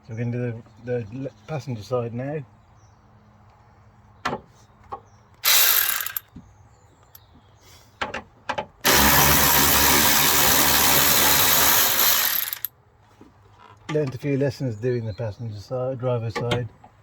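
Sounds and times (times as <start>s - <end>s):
power drill running: 5.4s - 6.2s, 8.8s - 12.7s.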